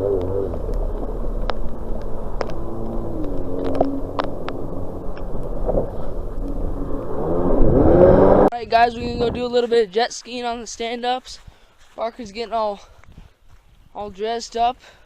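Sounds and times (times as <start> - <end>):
vehicle engine running: 0.0 - 8.5.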